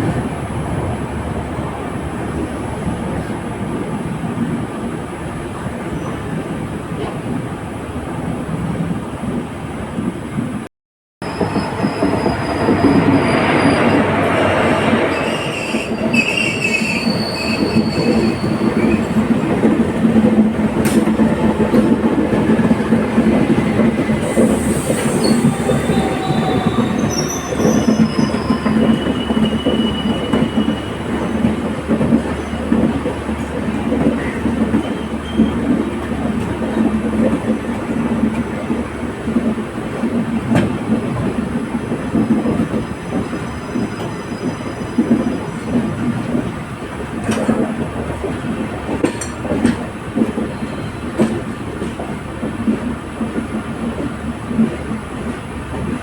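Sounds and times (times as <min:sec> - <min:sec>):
train coaches rumbling on rails: 0:00.0 - 0:56.0
wheels squealing: 0:11.2 - 0:19.5, 0:22.6 - 0:31.6.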